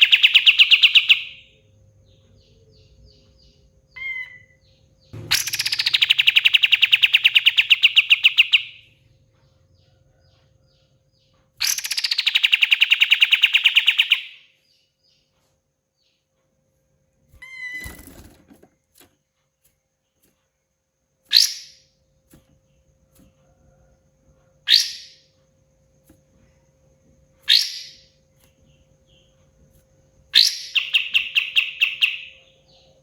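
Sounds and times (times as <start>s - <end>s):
bird chirp: 0.0s - 33.0s
sharp falling bird note: 5.2s - 6.4s
bird rattling trills: 5.2s - 8.6s.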